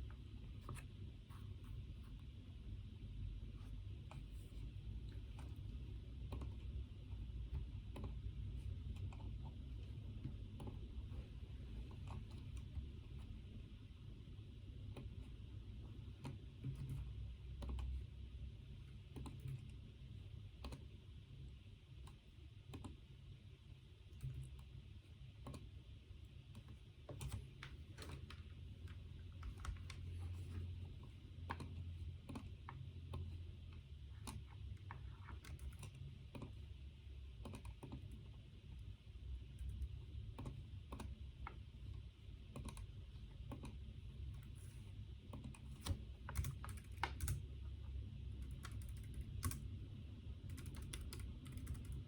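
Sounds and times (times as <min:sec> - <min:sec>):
low steady rumble: 0:00.0 - 0:52.0
typing on a keyboard: 0:19.0 - 0:19.8, 0:34.2 - 0:36.6, 0:37.4 - 0:38.3, 0:39.5 - 0:44.6, 0:45.3 - 0:47.4, 0:48.4 - 0:49.8, 0:50.4 - 0:52.0.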